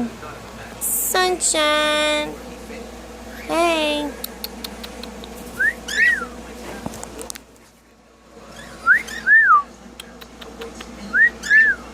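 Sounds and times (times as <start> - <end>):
cockatiel whistling: 5.6 - 6.3, 8.6 - 9.7, 11.2 - 11.8.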